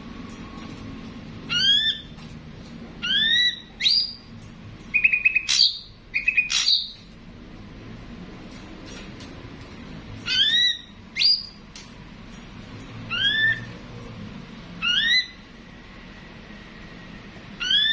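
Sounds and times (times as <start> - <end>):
bird calling with whistled notes: 3.0 - 4.3, 4.9 - 7.0, 10.3 - 11.6, 13.1 - 13.7, 14.8 - 15.4, 17.6 - 17.9.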